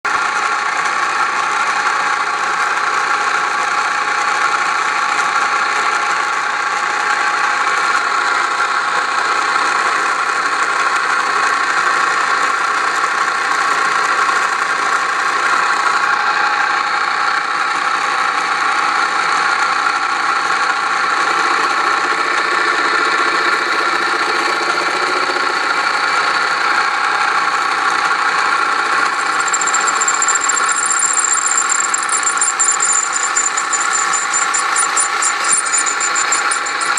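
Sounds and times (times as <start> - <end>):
lathe motor whining: 28.8 - 36.9
high-pitched squeal: 29.0 - 36.9.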